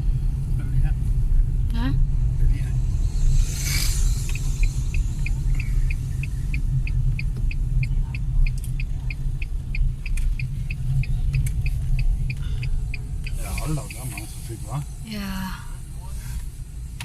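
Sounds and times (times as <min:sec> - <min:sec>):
car cabin rumble: 0:00.0 - 0:17.0
turn signal ticking: 0:04.3 - 0:17.0.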